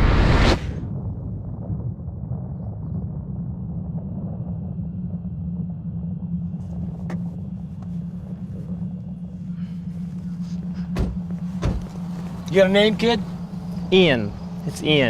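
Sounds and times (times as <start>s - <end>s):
car engine and road noise: 3.3s - 15.0s.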